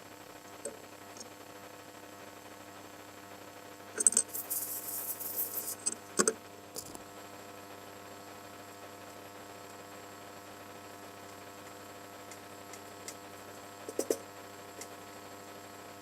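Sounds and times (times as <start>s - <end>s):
steady electrical hum: 0.0s - 16.0s
short high hiss: 4.2s - 5.9s.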